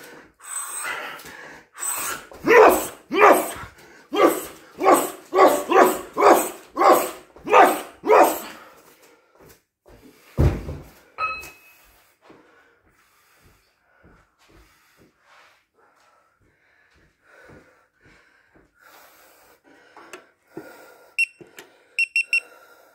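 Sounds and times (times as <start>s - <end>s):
man grunting: 2.4s - 8.6s
faint breathing: 11.7s - 22.9s.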